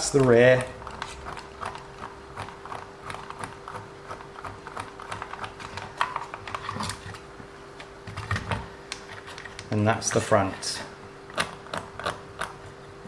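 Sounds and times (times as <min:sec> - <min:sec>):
hands clicking and tapping plastic parts: 0:00.0 - 0:07.1.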